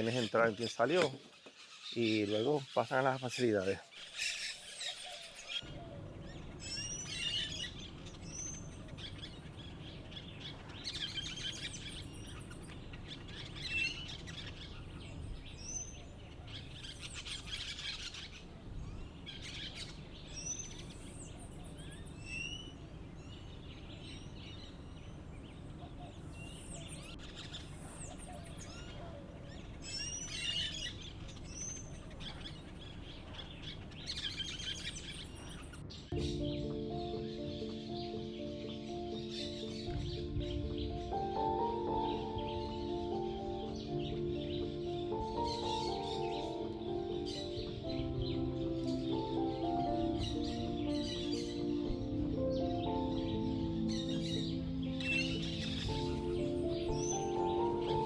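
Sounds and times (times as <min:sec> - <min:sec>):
parakeets chattering chirps: 0:00.0 - 0:36.1
steady low background hum: 0:05.6 - 0:36.9.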